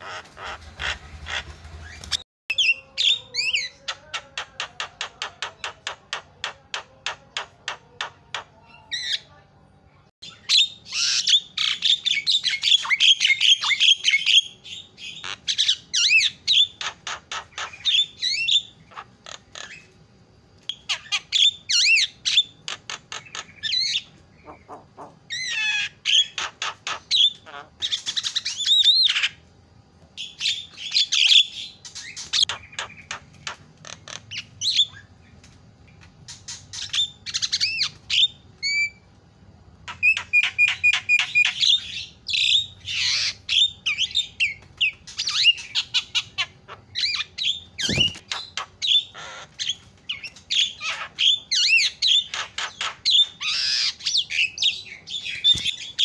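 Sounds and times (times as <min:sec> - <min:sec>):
bird singing clicks and chatter: 0:47.8 - 0:50.7, 0:55.2 - 0:55.9.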